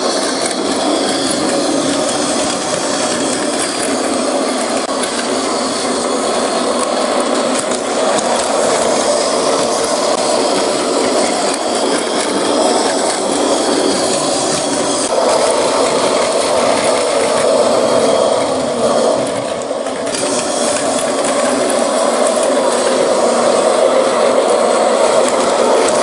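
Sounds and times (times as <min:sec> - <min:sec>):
toy train motor grinding and rattling: 0:00.0 - 0:26.0.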